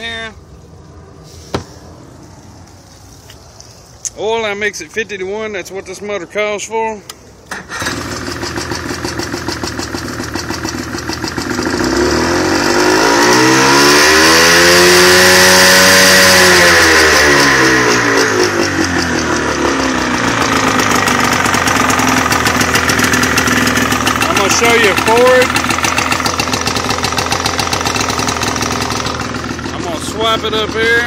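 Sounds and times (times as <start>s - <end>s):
outboard motor revving and idling: 7.6s - 31.0s.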